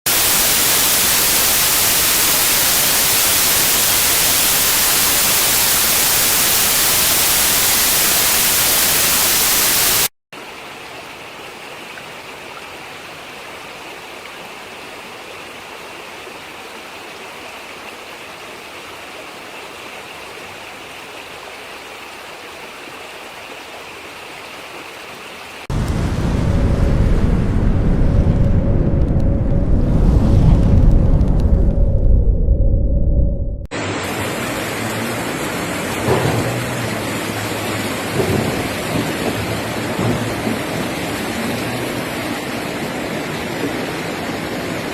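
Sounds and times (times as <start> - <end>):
rushing water: 0.1 - 31.9, 33.7 - 44.9
deep rushing noise: 25.7 - 34.4.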